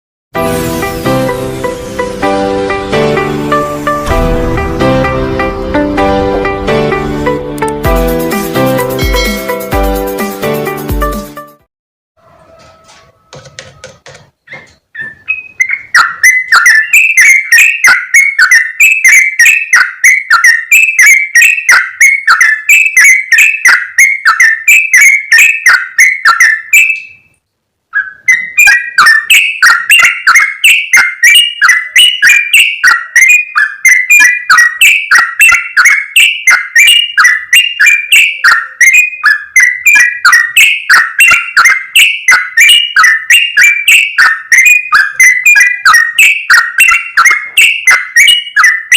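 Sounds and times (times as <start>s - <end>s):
bird chattering call: 14.5s - 27.3s, 28.0s - 48.9s.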